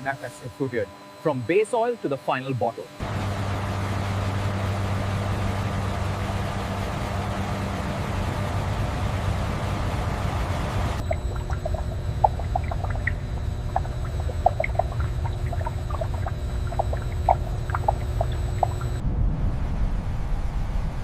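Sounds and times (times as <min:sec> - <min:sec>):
faint high whine: 0:00.0 - 0:21.0
low machinery rumble: 0:03.0 - 0:21.0
liquid pouring and dripping: 0:11.0 - 0:19.0
short plops: 0:11.0 - 0:19.0.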